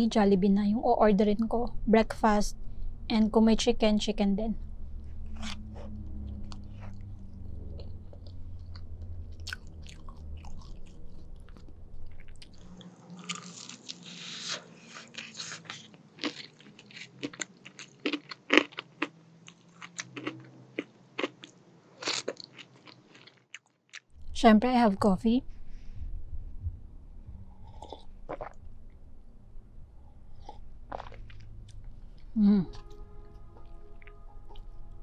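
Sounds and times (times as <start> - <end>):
low hum: 0.0 - 14.0, 24.2 - 35.0
soft chewing: 5.2 - 24.1, 30.3 - 35.0
crunching chewing: 5.3 - 24.1, 30.4 - 34.8.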